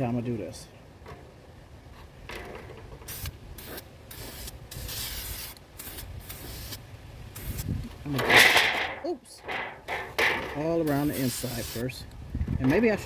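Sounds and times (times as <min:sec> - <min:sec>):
spray paint can hissing: 0:03.0 - 0:07.9, 0:10.8 - 0:12.0.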